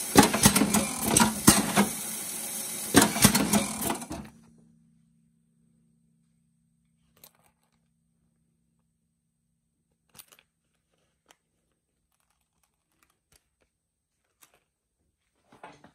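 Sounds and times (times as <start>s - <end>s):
faint low hum: 4.2s - 15.9s.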